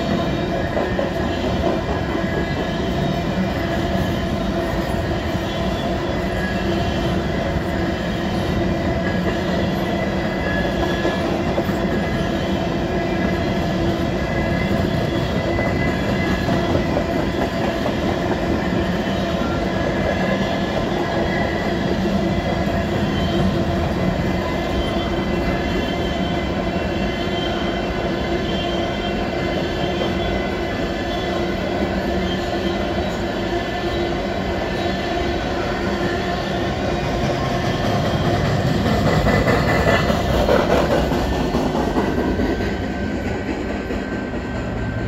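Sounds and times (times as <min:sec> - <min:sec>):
clickety-clack over rail joints: 0:00.0 - 0:26.5, 0:35.8 - 0:45.0.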